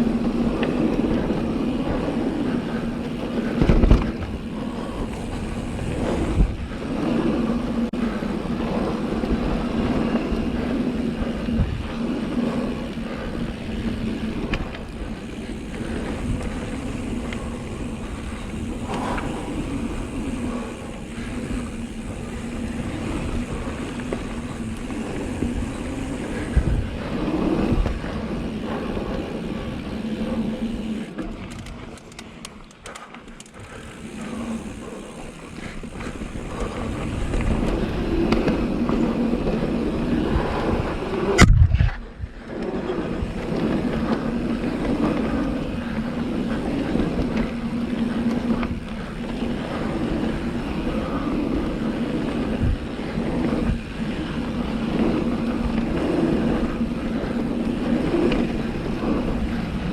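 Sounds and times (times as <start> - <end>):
bike tyres rolling on dirt: 0.0 - 59.9
wind on camera: 0.0 - 59.9.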